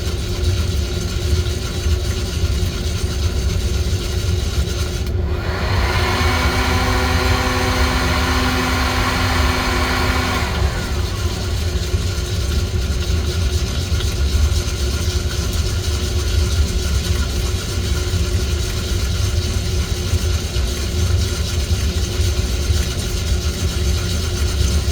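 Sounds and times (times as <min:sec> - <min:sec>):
electric motor whining: 0:05.2 - 0:12.3.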